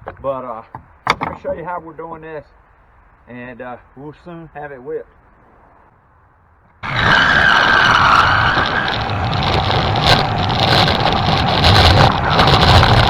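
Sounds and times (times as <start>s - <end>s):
power saw cutting plywood: 6.8s - 13.0s.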